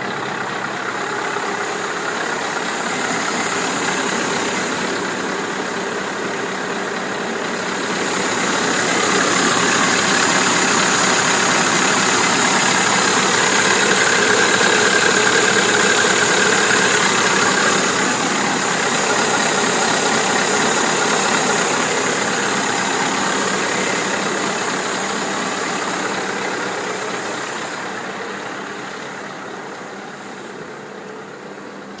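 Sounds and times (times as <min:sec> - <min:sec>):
truck diesel engine idling: 0:00.0 - 0:32.0.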